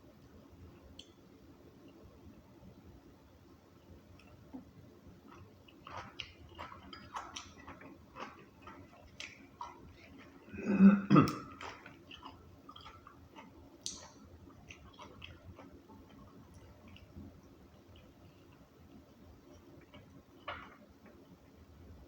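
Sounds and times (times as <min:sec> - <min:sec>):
person chewing food: 0:04.1 - 0:21.4.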